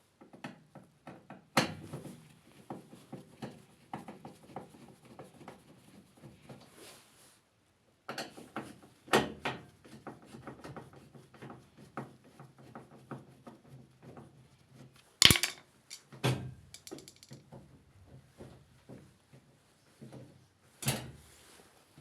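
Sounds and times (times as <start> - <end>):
clatter of parts and tools: 15.2 - 15.6, 16.8 - 17.4.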